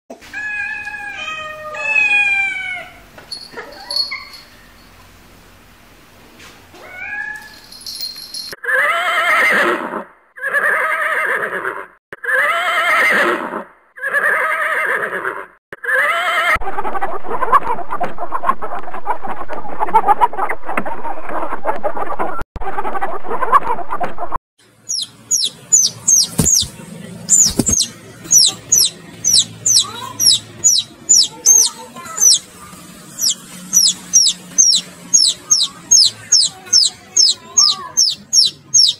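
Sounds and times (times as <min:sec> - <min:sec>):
cat meowing: 0:00.3 - 0:03.0
horses whinnying: 0:08.7 - 0:16.6
chickens clucking: 0:24.9 - 0:38.9.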